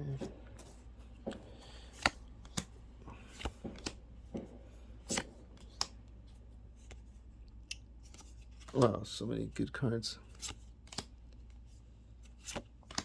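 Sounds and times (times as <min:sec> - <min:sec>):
cards flicking and snapping: 0:01.3 - 0:06.0, 0:10.4 - 0:11.5, 0:12.3 - 0:13.0.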